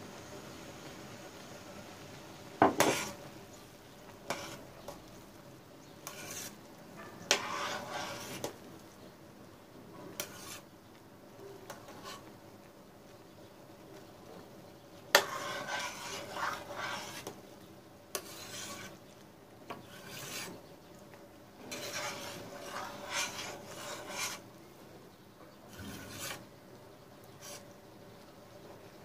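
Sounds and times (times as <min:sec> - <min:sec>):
metal spoon stirring jam in a pot: 0:02.6 - 0:03.2, 0:04.1 - 0:05.2, 0:05.8 - 0:06.6, 0:07.2 - 0:08.6, 0:10.1 - 0:11.0, 0:11.6 - 0:12.3, 0:15.0 - 0:24.5, 0:25.5 - 0:26.5, 0:27.2 - 0:27.8.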